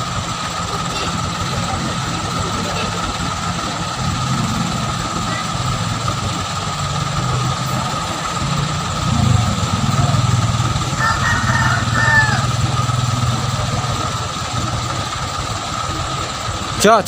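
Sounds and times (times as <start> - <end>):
truck engine running: 0.0 - 17.0
rooster crowing: 9.1 - 13.8.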